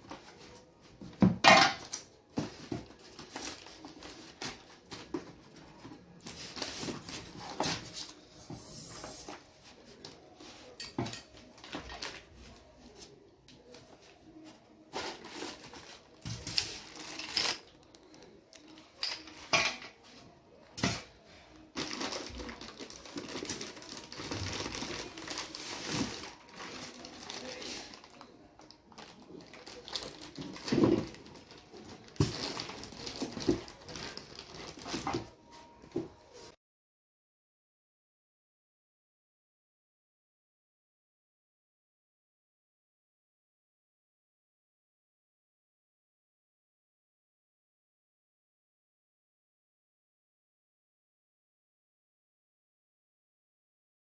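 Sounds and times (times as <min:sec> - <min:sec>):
packaging rustling: 0:02.4 - 0:09.4, 0:14.9 - 0:19.4, 0:21.7 - 0:35.4.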